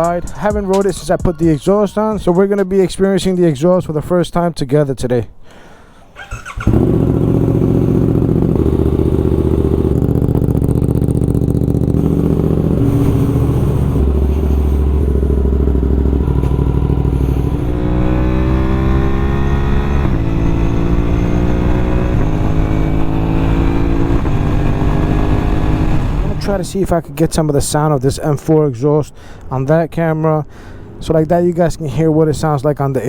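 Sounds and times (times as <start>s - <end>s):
motorcycle engine revving: 6.2s - 26.6s.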